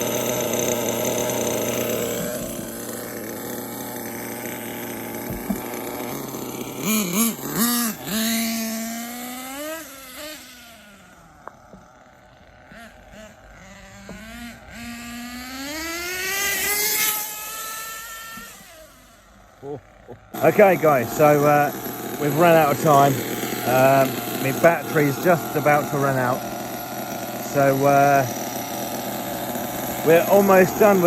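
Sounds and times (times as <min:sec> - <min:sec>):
model engine revving: 0:00.0 - 0:31.0.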